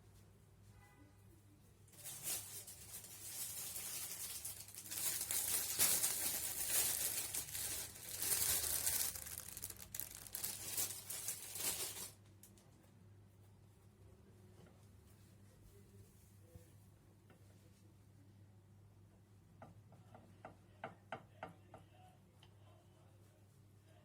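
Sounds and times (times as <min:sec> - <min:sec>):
crinkling and rustling: 0:01.9 - 0:12.8.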